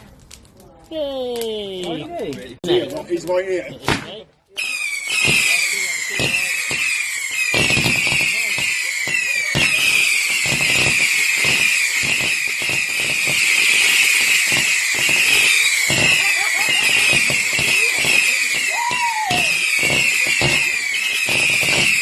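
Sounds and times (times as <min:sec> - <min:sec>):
firework crackling: 0:00.0 - 0:22.0
whistling firework screeching: 0:04.6 - 0:22.0.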